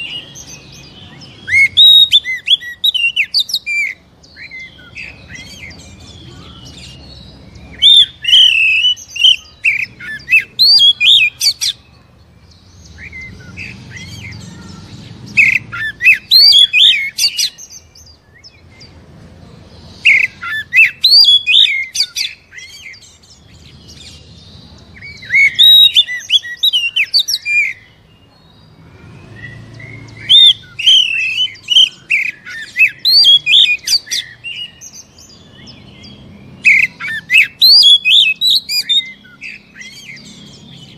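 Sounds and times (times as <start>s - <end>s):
bird singing loud varied whistles: 1.4s - 5.8s, 7.7s - 11.8s, 15.4s - 18.6s, 20.0s - 23.1s, 25.0s - 27.9s, 29.2s - 40.8s.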